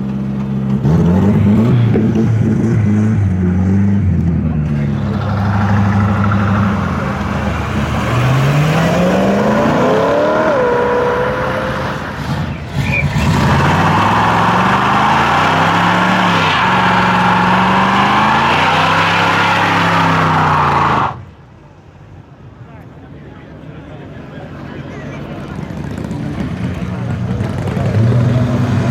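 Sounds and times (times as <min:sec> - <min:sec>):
car engine revving: 0:00.2 - 0:21.3, 0:25.1 - 0:28.9.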